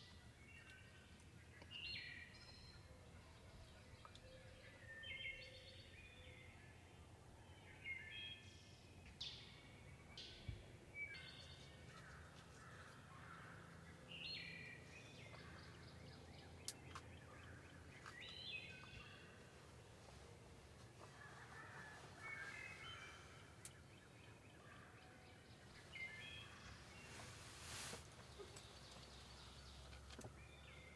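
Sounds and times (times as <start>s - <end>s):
birds chirping: 10.1s - 30.9s.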